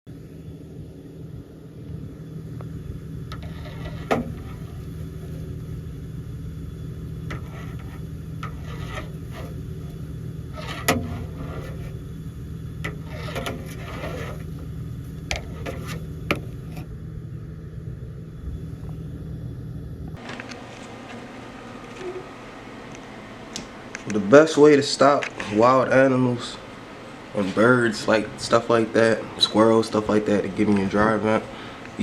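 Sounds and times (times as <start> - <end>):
steady low hum: 0.1 - 32.0
scraping at a dryer vent: 2.4 - 17.0.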